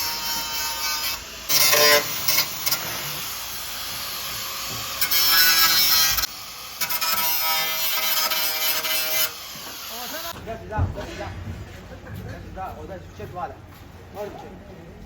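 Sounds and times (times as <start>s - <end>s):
power tool rasping on metal: 0.0s - 10.4s.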